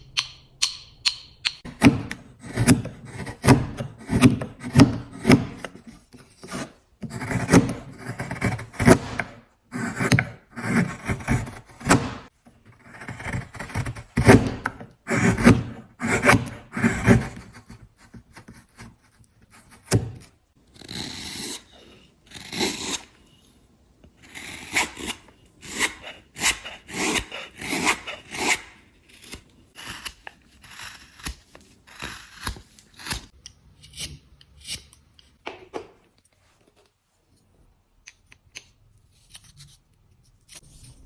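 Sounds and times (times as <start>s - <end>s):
hand tool rasping wood: 12.9s - 17.6s, 24.6s - 28.7s.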